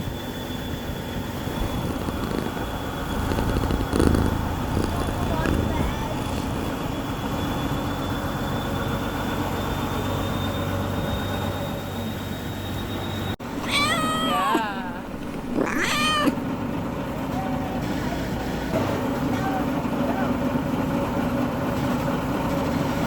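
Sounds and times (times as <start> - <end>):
wavering animal cries: 13.5 - 16.5.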